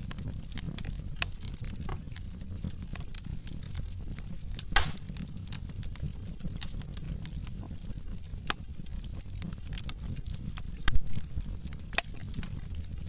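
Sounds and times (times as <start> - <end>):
low steady fire rumble: 0.0 - 13.0
wood fire crackling and popping: 0.0 - 13.0.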